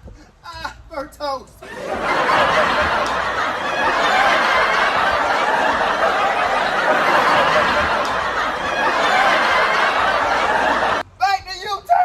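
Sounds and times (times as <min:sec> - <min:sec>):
crowd laughing: 0:01.6 - 0:11.0.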